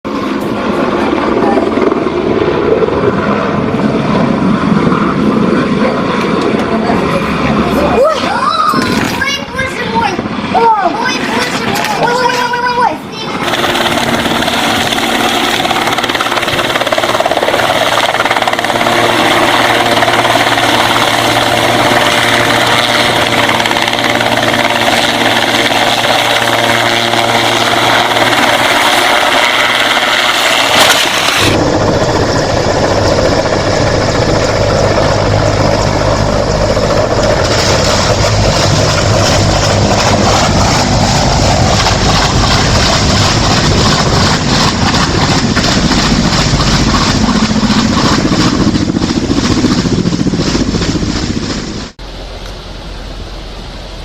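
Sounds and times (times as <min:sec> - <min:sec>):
helicopter engine and rotor: 0:00.0 - 0:53.9.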